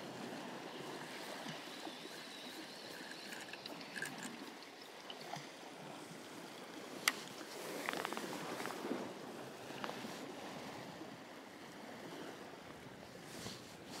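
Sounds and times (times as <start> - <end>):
sea water lapping against rocks: 0.0 - 10.6.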